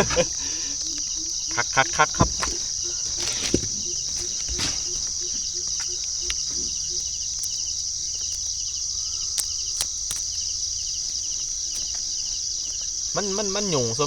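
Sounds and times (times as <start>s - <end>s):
crickets trilling: 0.0s - 14.0s
lower pulsing insect call: 0.0s - 14.0s
sharp clicks: 0.1s - 8.6s, 9.2s - 10.5s.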